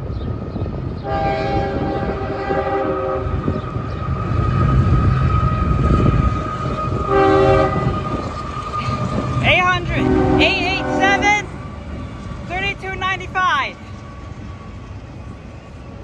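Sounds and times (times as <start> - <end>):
train rumbling: 0.0 - 16.0
train horn blast: 1.0 - 3.6, 6.9 - 9.0, 9.6 - 11.7.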